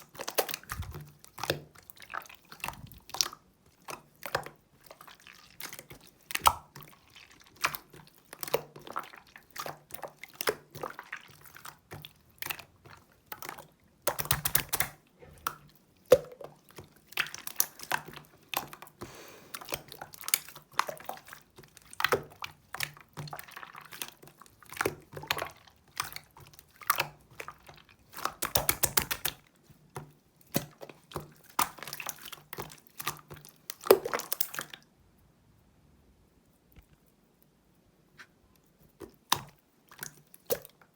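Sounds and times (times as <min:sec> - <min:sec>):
slime squished by hand: 0:00.1 - 0:12.7, 0:13.4 - 0:29.4.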